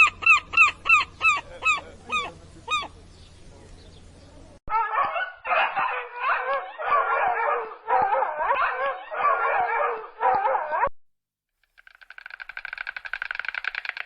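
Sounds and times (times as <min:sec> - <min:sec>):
animal warbling cries: 0:00.0 - 0:03.0.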